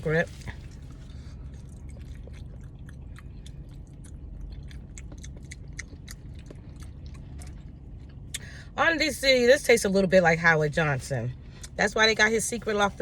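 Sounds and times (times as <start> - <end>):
steady low hum: 0.0 - 13.0
person chewing: 0.2 - 8.4.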